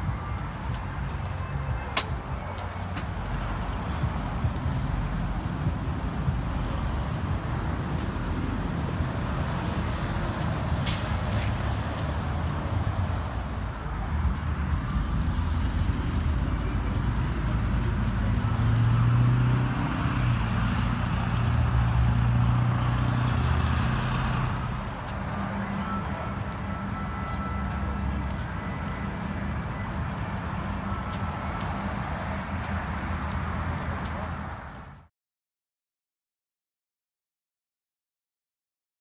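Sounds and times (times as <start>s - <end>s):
car engine humming: 6.3s - 34.7s.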